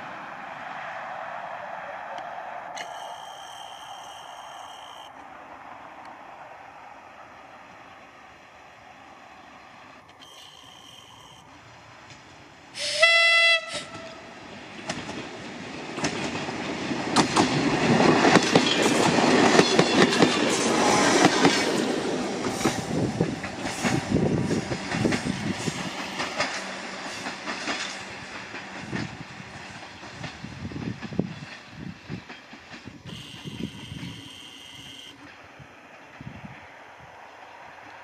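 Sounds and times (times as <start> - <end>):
diesel railcar passing: 0.0 - 38.0
wheels clicking over rail joints: 10.0 - 36.5
train horn: 12.8 - 14.4, 33.0 - 35.3.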